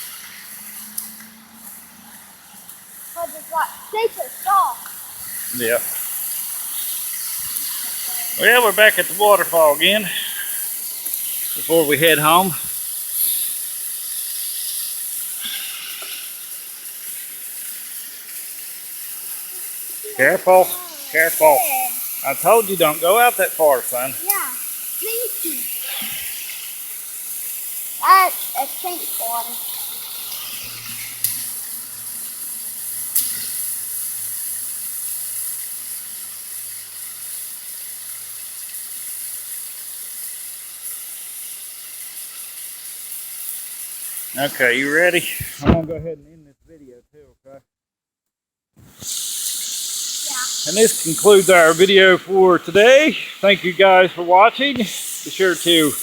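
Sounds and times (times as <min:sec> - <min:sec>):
waterfall rushing: 0:03.1 - 0:10.9, 0:11.5 - 0:12.8, 0:19.3 - 0:26.7, 0:27.9 - 0:30.3, 0:44.3 - 0:45.6, 0:50.2 - 0:56.0.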